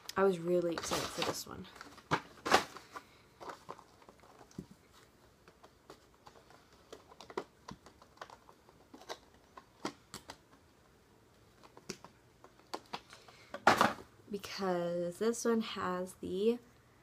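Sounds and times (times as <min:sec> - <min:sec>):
makeup packaging clicks and taps: 0:05.4 - 0:10.6, 0:11.4 - 0:13.7.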